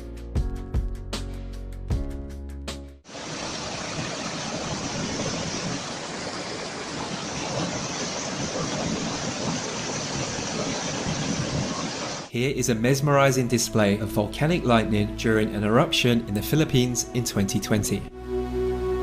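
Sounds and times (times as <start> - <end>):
steady rushing noise: 3.1 - 12.3.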